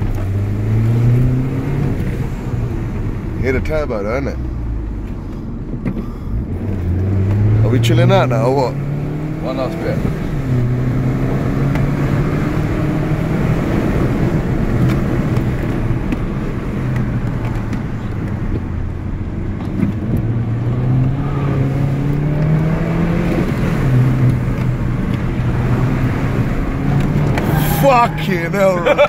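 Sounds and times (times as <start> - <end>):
car engine accelerating: 0.0 - 29.0
road and tyre noise: 0.0 - 29.0.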